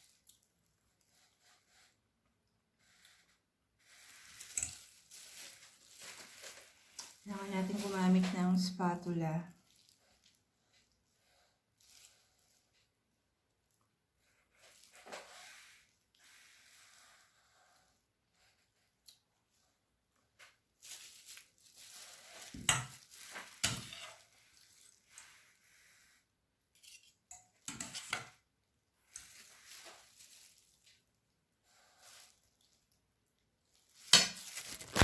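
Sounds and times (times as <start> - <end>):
spatula scraping and tapping dish: 22.4 - 24.3, 26.8 - 28.4.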